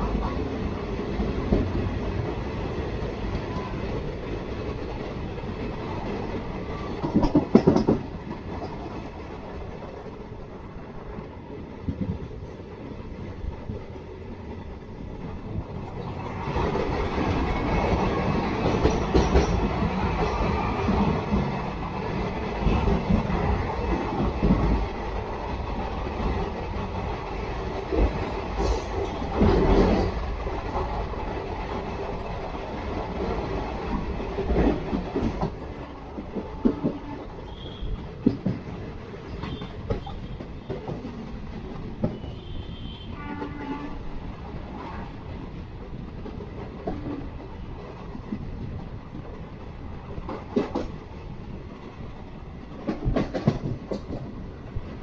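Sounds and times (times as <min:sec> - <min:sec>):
train coaches rumbling: 0:00.0 - 0:55.0.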